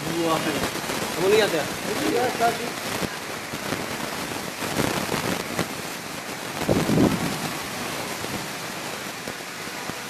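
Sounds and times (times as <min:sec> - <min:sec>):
strong storm wind gusting: 0:00.0 - 0:09.9
heavy rain: 0:00.0 - 0:10.0.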